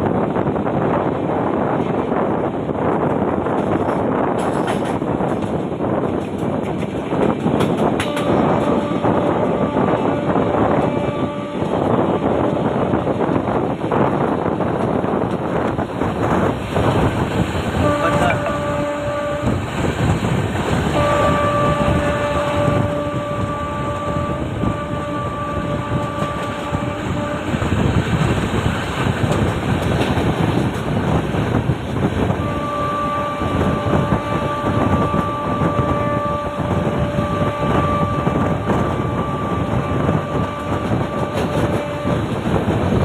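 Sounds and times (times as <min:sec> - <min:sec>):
train rumble and rattle: 0:00.0 - 0:43.0
train horn blasts: 0:07.4 - 0:14.1, 0:16.3 - 0:30.0, 0:31.6 - 0:43.0.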